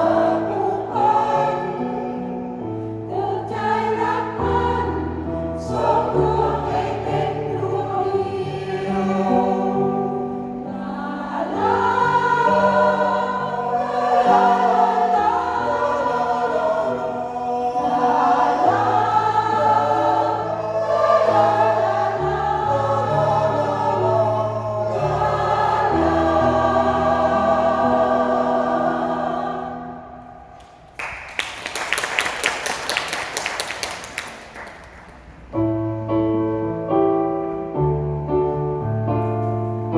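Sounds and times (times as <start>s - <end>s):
mixed choir singing: 0.0s - 30.8s
applause: 30.9s - 35.4s.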